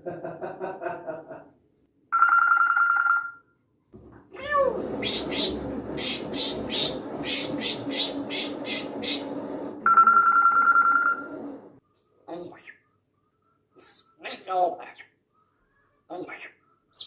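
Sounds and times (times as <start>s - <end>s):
telephone-like ringing tone: 2.2s - 3.4s, 9.9s - 11.3s
parrot calling: 4.4s - 9.7s.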